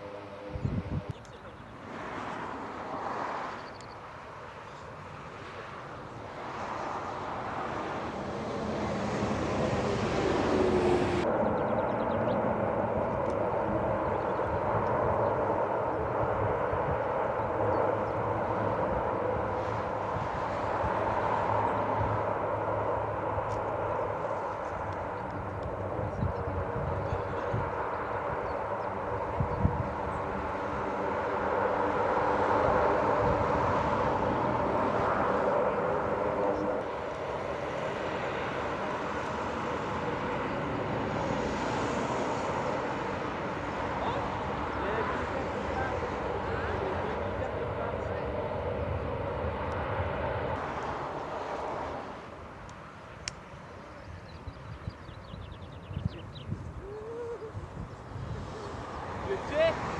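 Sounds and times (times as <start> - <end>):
aircraft engine drone overhead: 0.0 - 59.9.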